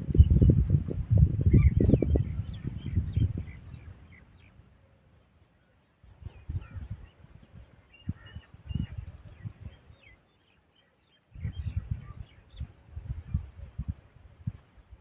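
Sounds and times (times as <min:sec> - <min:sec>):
low rumbling on microphone: 0:00.0 - 0:04.0, 0:11.4 - 0:14.7
birds chirping: 0:00.0 - 0:04.9, 0:05.7 - 0:14.1.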